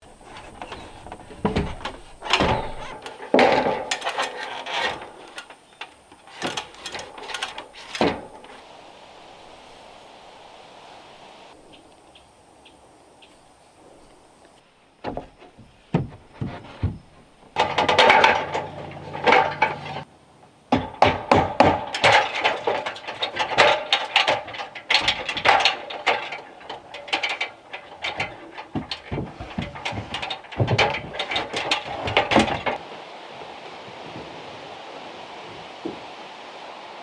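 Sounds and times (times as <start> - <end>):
timber and tools knocking: 0.0 - 5.4.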